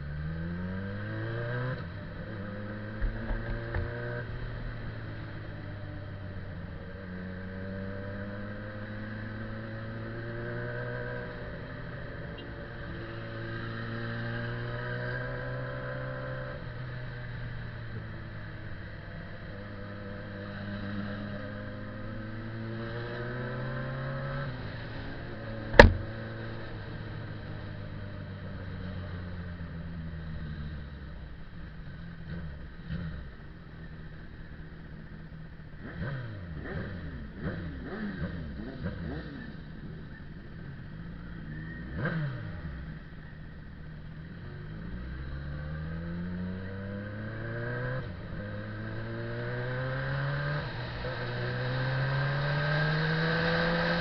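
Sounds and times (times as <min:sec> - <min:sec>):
motorcycles revving and passing: 0:00.0 - 0:54.0
motorcycle engines running: 0:01.8 - 0:54.0
sharp knock: 0:25.7 - 0:26.2.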